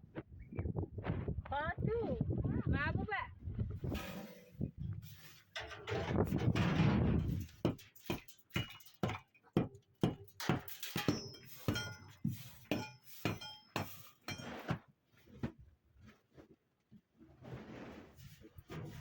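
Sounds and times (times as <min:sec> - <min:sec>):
hard objects clinking: 0:07.2 - 0:14.7.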